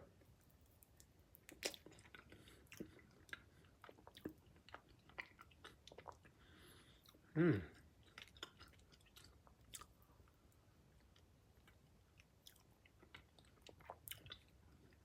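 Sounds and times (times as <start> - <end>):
person chewing food: 0.2 - 15.0.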